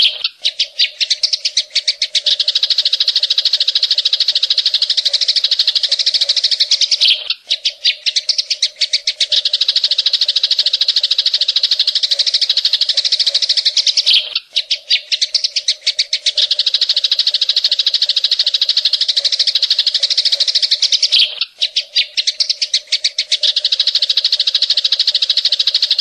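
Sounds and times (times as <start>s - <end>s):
bird singing fast trill: 0.0s - 26.0s.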